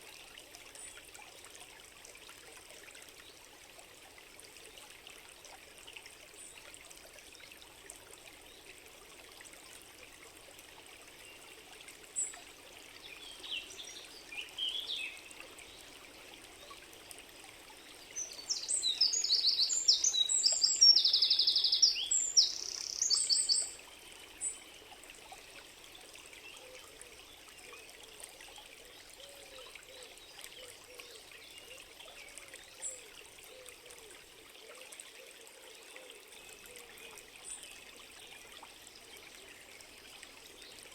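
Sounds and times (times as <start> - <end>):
small stream trickling: 0.0 - 40.9
songbird singing: 13.0 - 15.9, 17.9 - 24.8
bird chirps: 18.3 - 23.7.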